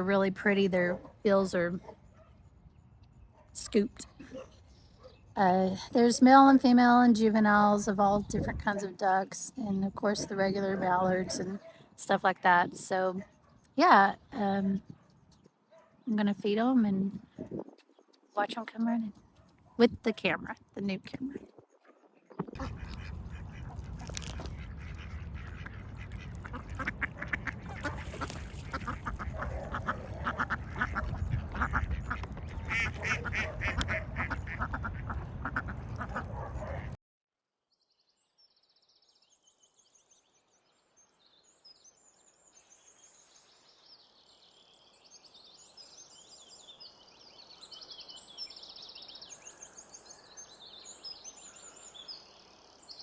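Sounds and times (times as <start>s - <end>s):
ducks quacking: 22.3s - 37.0s.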